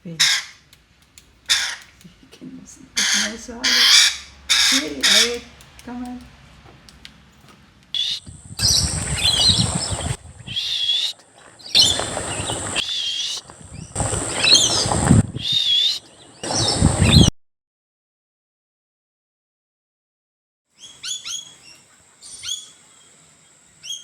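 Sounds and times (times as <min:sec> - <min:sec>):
birds warbling: 0:01.4 - 0:02.0, 0:02.9 - 0:05.5, 0:08.0 - 0:17.3.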